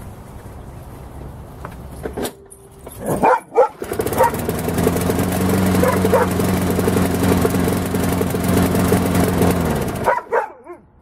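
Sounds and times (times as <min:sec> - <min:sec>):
short sounds over engine: 0:02.0 - 0:10.1
mower engine pull-start: 0:02.0 - 0:10.2
mower engine running: 0:02.1 - 0:10.4.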